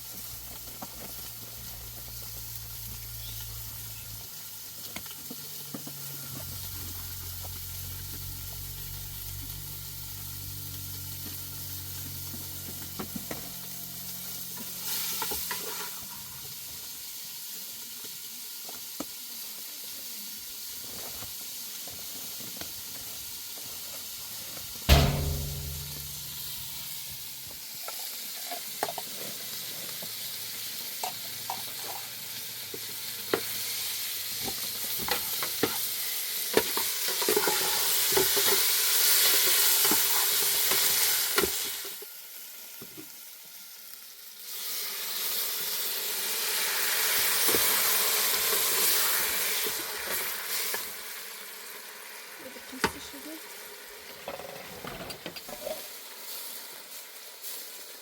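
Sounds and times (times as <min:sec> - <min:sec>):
food sizzling on a hot pan: 0:00.0 - 0:58.0
heavy thump: 0:24.9 - 0:26.8.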